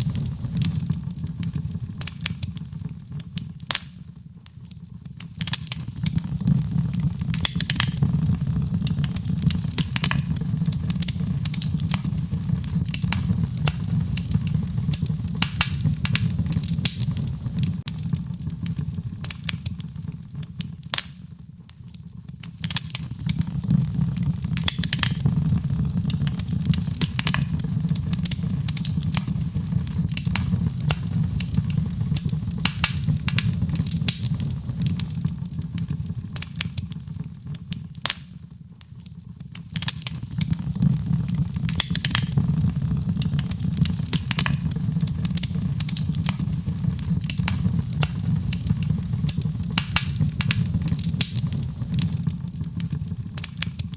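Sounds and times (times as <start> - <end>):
low rumble of flames: 0.0 - 53.9
wood fire crackling and popping: 0.0 - 53.9.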